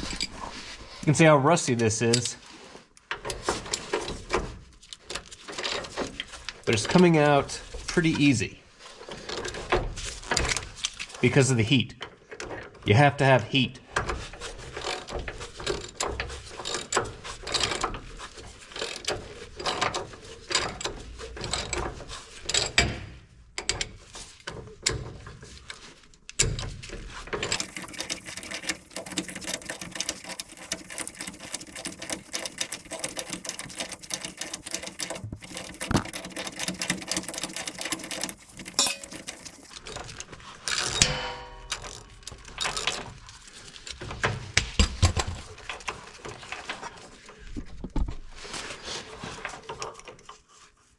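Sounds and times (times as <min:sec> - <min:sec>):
ratchet wrench clicking: 0:27.6 - 0:39.7.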